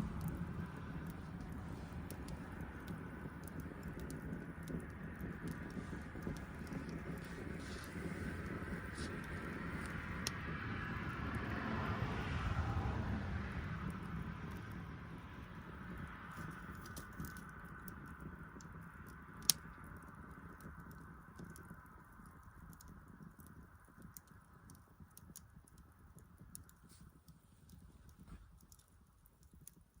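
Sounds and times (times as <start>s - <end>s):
low rumble: 0.0s - 16.2s
wood fire crackling and popping: 0.0s - 30.0s.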